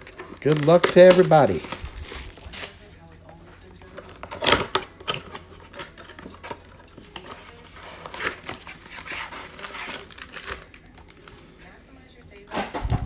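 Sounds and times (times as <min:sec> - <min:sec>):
card packs rustling: 0:00.0 - 0:13.0
cardboard box ripping: 0:00.1 - 0:02.8, 0:07.2 - 0:10.7.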